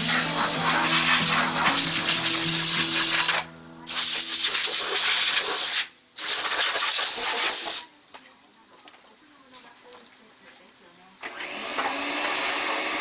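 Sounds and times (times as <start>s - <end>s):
pressurised spray hissing: 0.0s - 7.9s.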